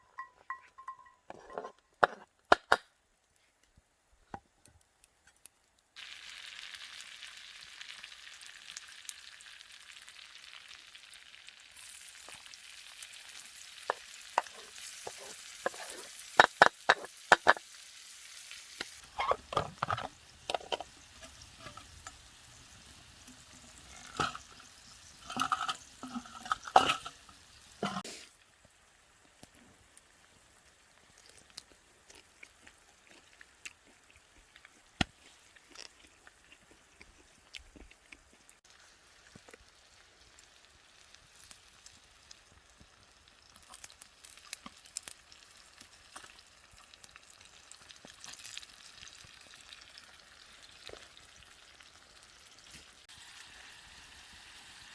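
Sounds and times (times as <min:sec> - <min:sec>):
utensil clinking and scraping: 0:00.0 - 0:02.3, 0:13.9 - 0:17.6, 0:19.0 - 0:22.2, 0:23.6 - 0:28.0
food sizzling in a metal pan: 0:06.0 - 0:30.7, 0:38.6 - 0:54.9.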